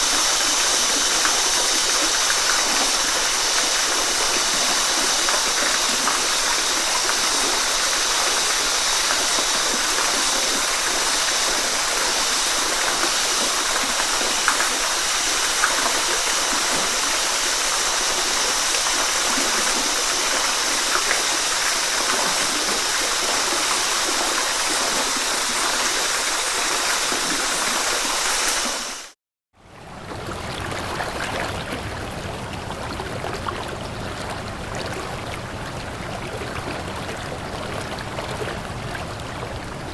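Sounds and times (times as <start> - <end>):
stream water rushing: 0.0 - 29.2
water splashes and drips: 0.0 - 29.2.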